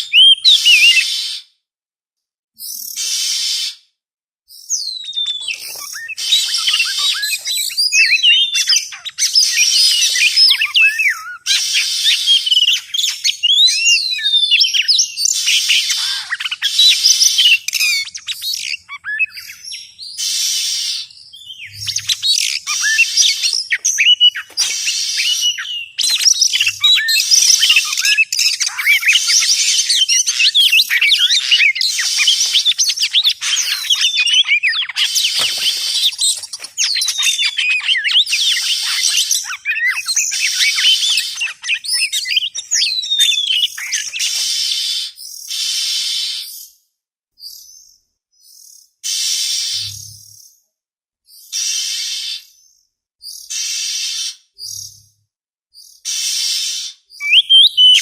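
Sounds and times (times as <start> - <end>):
bird singing whistles: 0.0 - 1.5, 4.5 - 46.8, 55.8 - 58.0.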